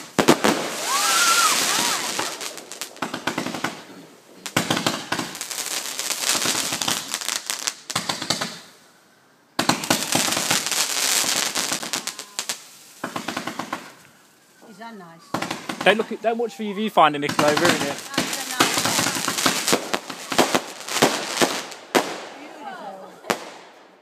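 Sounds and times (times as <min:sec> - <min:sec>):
fireworks cracking and crackling: 0:00.0 - 0:08.8, 0:09.6 - 0:24.0.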